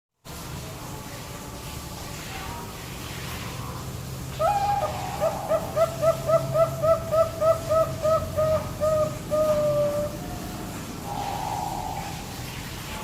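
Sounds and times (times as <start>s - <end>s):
dove cooing: 4.3s - 12.6s.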